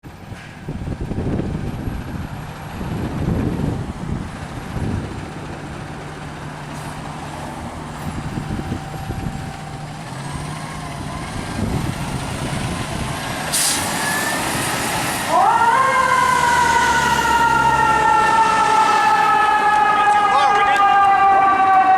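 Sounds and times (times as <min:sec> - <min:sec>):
fire engine diesel engine running: 0:00.1 - 0:21.9
air brake hiss: 0:13.5 - 0:14.1.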